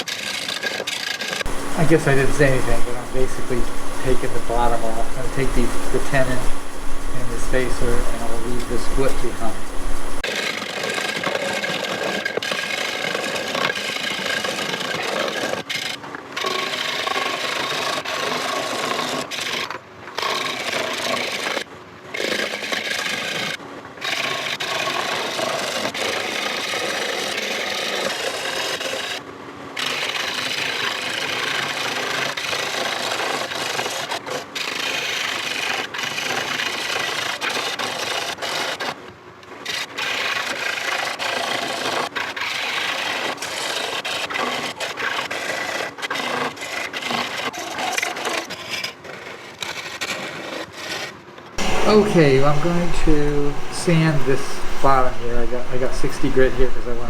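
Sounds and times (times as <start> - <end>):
lathe tool scraping wood: 0.3 - 10.2, 51.6 - 57.0.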